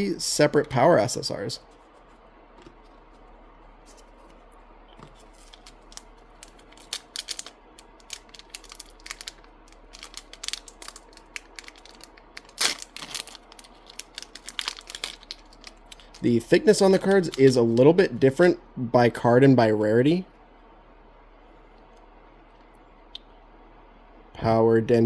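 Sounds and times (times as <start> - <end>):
cards and wrapper crinkling: 5.0 - 17.8.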